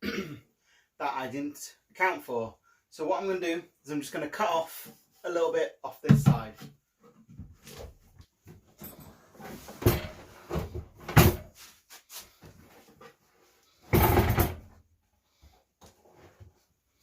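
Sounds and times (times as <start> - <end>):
wooden knocks and clunks: 6.0 - 8.8.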